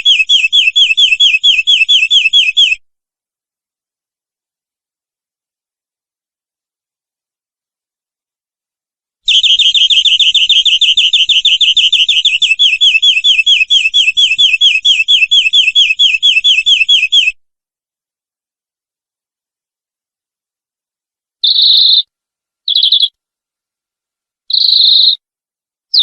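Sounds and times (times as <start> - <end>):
canary trilling: 0.0 - 2.8, 9.3 - 17.4, 21.4 - 22.1, 22.7 - 23.2, 24.5 - 25.2.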